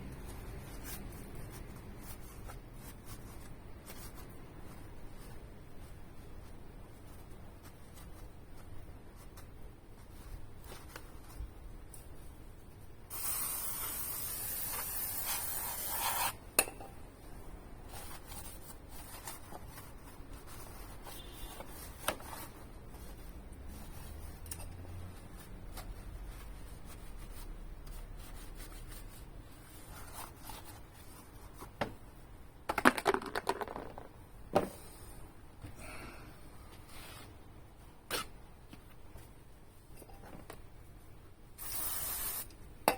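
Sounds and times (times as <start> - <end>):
rubbing and light scraping: 0.0 - 12.7, 17.8 - 31.8
aerosol spray can hissing: 13.1 - 16.4, 41.6 - 42.5.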